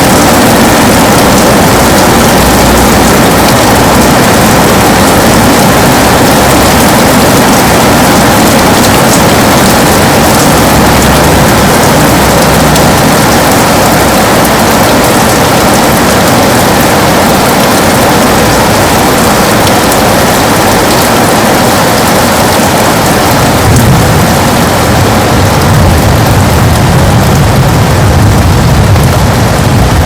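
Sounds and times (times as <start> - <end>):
heavy rain on a window: 0.0 - 30.0
low rumble: 22.8 - 30.0.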